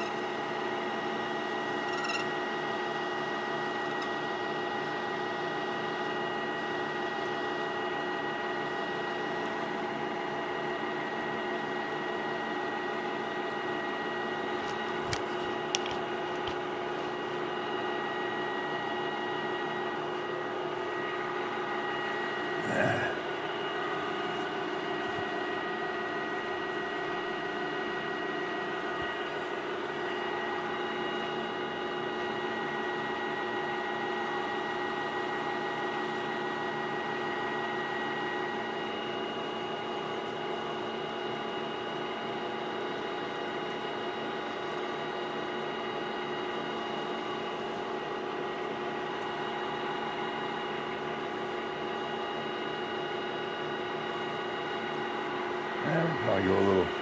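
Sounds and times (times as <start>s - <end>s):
workshop machine motor humming: 0.0s - 32.0s, 38.5s - 57.0s.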